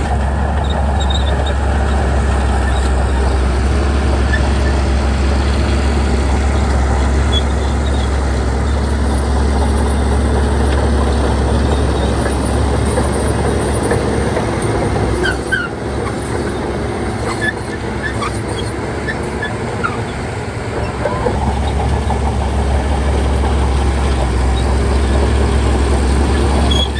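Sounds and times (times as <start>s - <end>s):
bulldozer diesel engine droning: 0.0s - 26.9s
short high squeaks: 0.7s - 1.6s, 7.2s - 10.0s, 15.2s - 20.1s, 26.6s - 26.9s.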